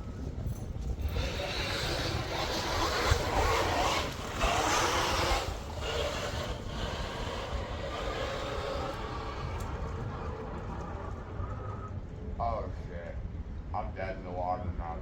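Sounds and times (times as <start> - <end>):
wind rumbling on microphone: 0.0 - 15.0
radio-controlled boat motor churning: 1.0 - 12.1.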